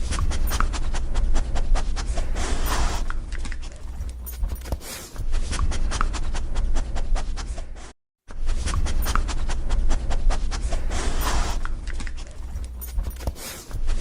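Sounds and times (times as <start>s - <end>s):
dog panting: 0.0s - 7.8s, 8.6s - 14.0s.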